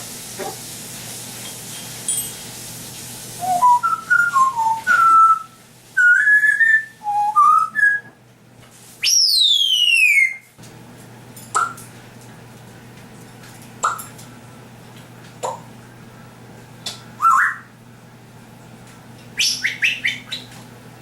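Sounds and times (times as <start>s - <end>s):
parrot whistling: 3.4s - 8.1s, 9.0s - 10.5s, 17.2s - 17.7s, 19.4s - 20.5s.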